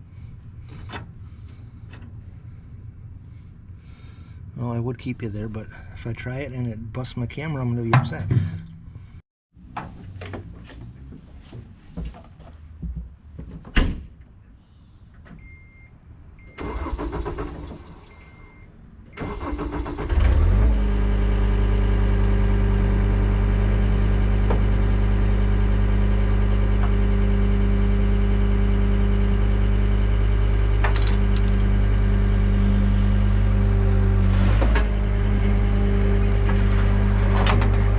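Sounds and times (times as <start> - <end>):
diesel engine starting and idling: 16.4 - 37.9.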